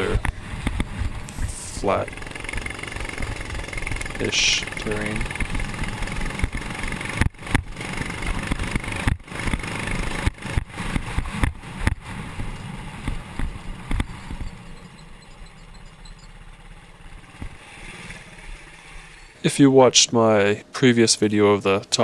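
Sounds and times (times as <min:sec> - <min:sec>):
mini bike engine running: 0:00.0 - 0:19.5.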